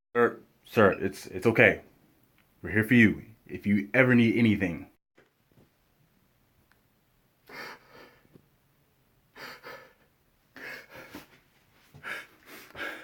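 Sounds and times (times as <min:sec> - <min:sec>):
man gasping for breath: 0:11.9 - 0:13.0.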